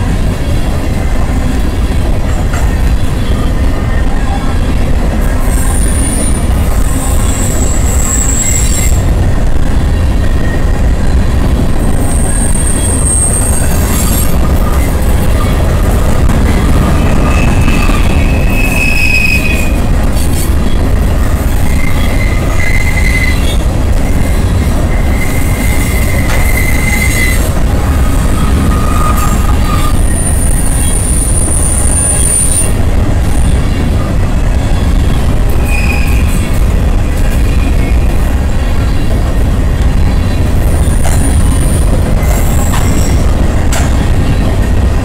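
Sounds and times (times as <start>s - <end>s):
steel wheels rumbling on rail: 0.0s - 45.0s
high-pitched wheel squeals: 7.1s - 9.1s, 11.9s - 15.5s, 16.5s - 19.8s, 21.6s - 23.6s, 24.2s - 32.7s, 35.6s - 36.4s.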